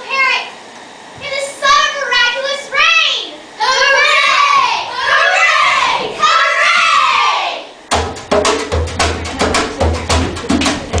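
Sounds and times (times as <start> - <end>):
hand percussion drum strikes: 7.9 - 11.0.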